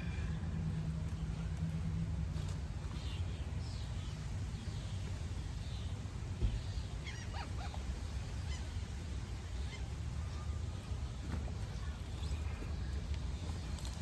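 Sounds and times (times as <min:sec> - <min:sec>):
bird calling: 0:06.7 - 0:10.6.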